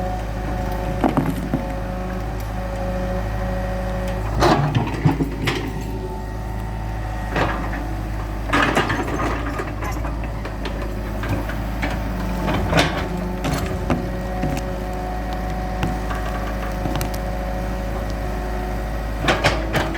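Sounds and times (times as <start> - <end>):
excavator diesel engine running: 0.0 - 19.9
sharp knocks and clanks: 8.5 - 14.8, 15.4 - 17.3.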